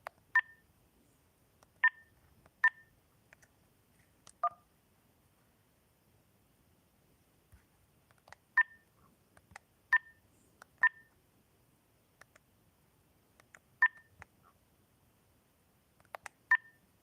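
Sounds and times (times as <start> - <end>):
faint clicks: 12.2 - 12.5.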